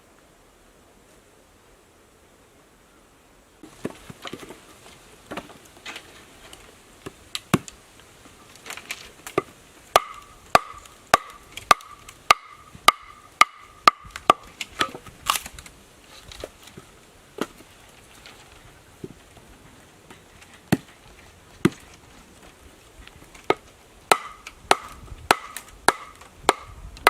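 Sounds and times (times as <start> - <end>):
tool chopping wood: 9.3 - 15.4, 21.6 - 21.9, 23.4 - 26.8.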